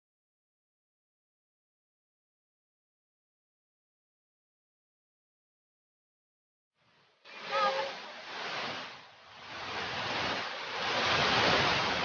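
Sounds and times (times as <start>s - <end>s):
rushing water: 6.8s - 12.0s
brief voice-like call: 7.3s - 8.1s.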